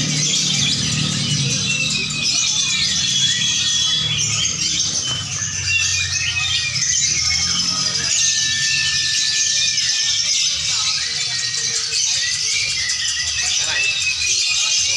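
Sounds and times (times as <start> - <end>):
lovebirds chattering and trilling: 0.0 - 14.9
murmur of crowd voices: 0.0 - 14.9.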